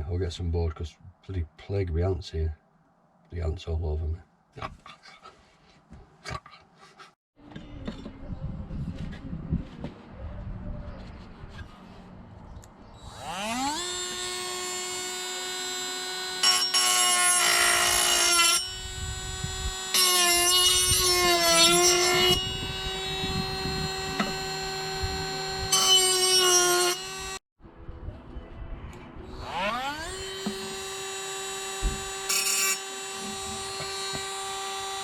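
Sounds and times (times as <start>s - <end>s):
power tool spinning and cutting: 13.0s - 27.4s, 29.3s - 35.0s.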